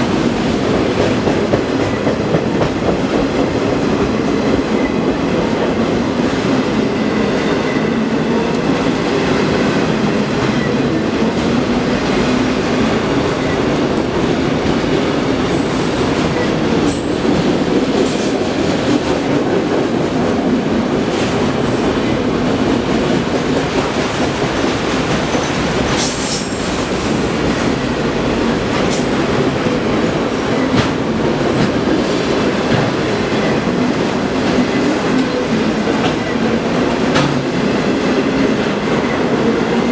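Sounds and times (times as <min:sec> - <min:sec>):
freight train wheels rumbling on rail: 0:00.0 - 0:39.9.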